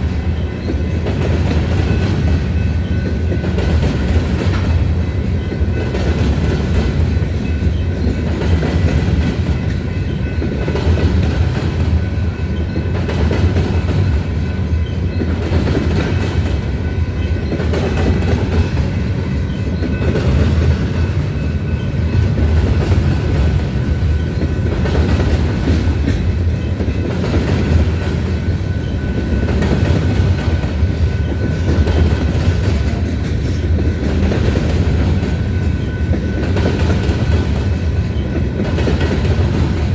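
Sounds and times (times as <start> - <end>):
clickety-clack over rail joints: 0.0 - 39.9
freight train wheels rumbling: 0.0 - 39.9.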